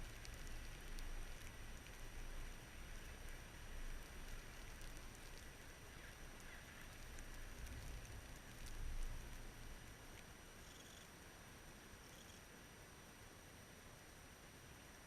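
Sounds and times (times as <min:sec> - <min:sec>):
faint ticks: 0:00.0 - 0:11.4, 0:12.0 - 0:12.5.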